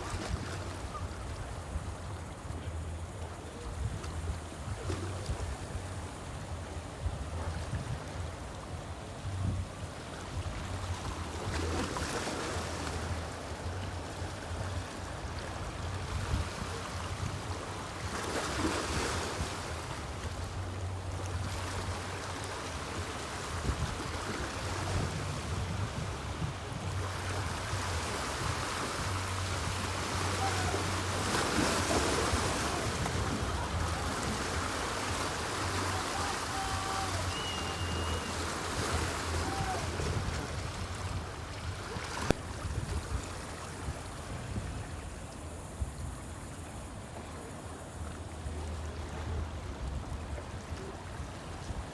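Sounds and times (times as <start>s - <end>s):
waves washing in: 0.0s - 51.9s.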